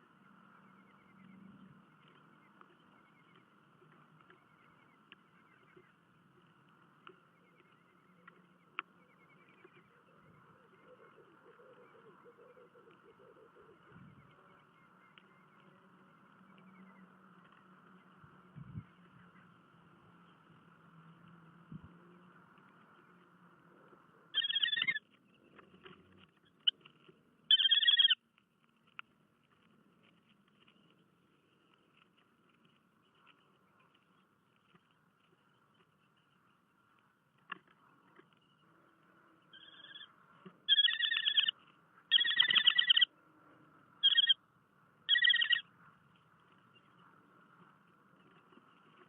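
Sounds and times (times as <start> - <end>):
bird chattering call: 24.3 - 25.0, 27.5 - 28.2, 39.5 - 40.1, 40.7 - 41.5, 42.1 - 43.1, 44.0 - 44.4, 45.1 - 45.6.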